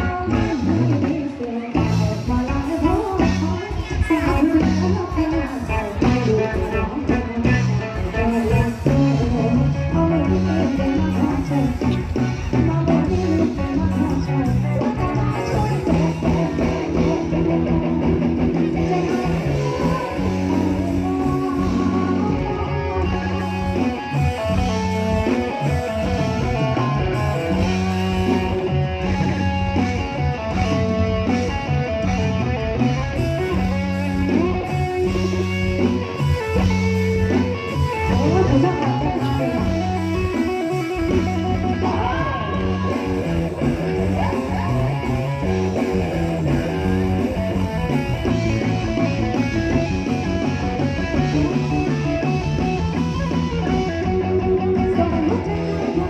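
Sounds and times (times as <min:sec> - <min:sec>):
bass line: 0:00.0 - 0:56.0
lead guitar: 0:00.0 - 0:56.0.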